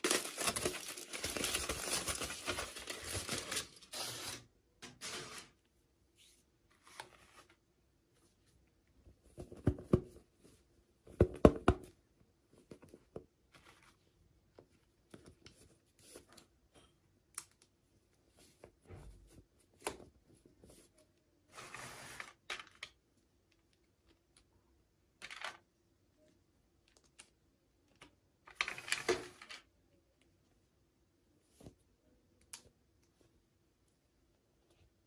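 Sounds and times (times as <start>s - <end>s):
packaging tearing rustle: 0.0s - 4.4s.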